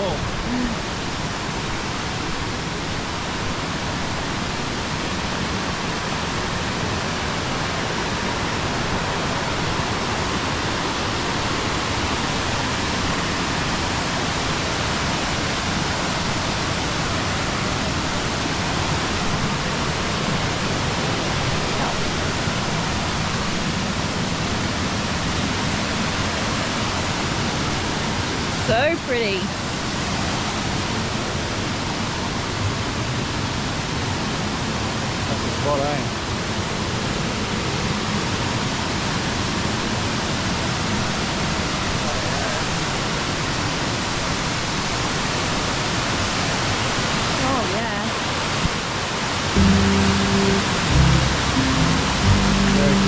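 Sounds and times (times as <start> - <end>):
waterfall rushing: 49.6 - 53.0.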